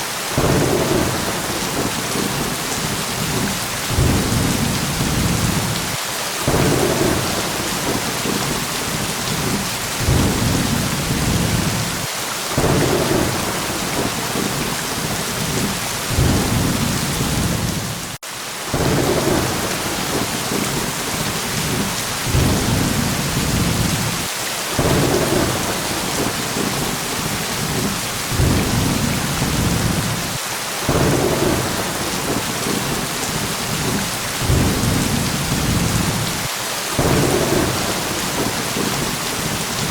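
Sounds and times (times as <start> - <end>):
heavy rain: 0.0 - 39.9
thunder rumbles: 0.4 - 39.9.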